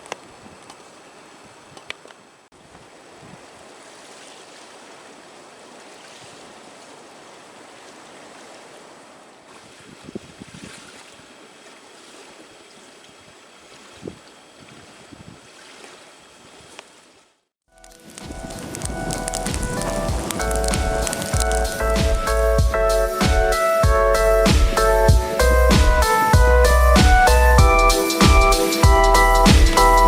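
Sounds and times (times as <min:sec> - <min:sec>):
lake waves washing on shore: 0:02.6 - 0:17.2, 0:17.8 - 0:22.5.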